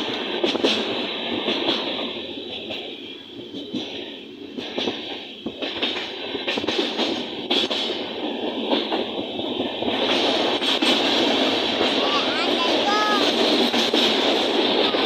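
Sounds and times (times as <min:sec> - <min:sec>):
train rushing rumble: 0:00.0 - 0:15.0
wheels clicking over rails: 0:00.0 - 0:15.0.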